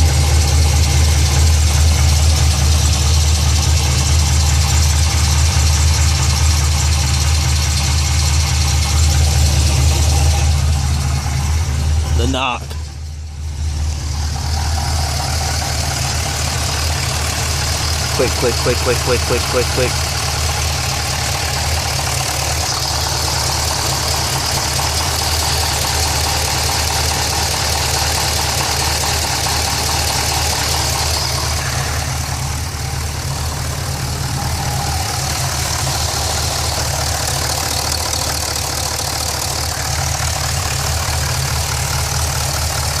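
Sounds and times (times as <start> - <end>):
car engine idling: 0.0 - 43.0
repetitive engine knock: 14.0 - 43.0.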